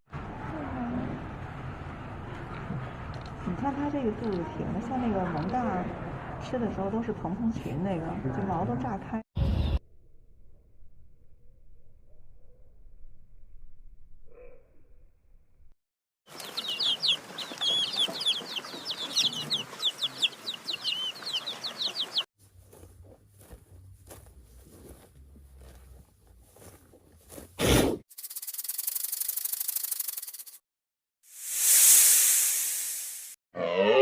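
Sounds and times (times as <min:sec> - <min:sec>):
birds chirping: 0:16.3 - 0:22.3
scratching and rubbing: 0:28.2 - 0:30.6.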